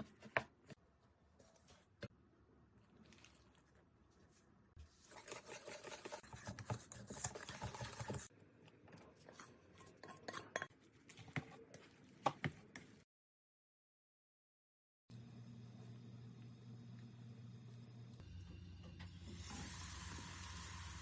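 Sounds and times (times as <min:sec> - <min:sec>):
utensil stirring batter in bowl: 0:02.8 - 0:08.3.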